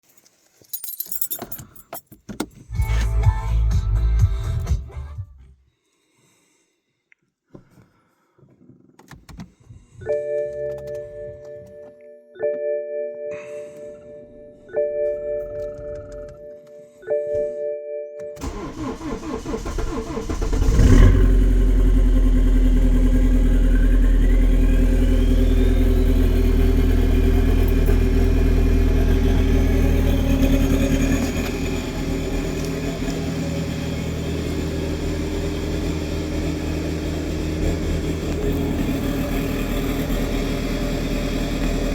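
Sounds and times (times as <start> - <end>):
car chime: 10.0 - 17.6
diesel engine idling: 18.4 - 41.9
starter motor cranking: 18.4 - 41.9.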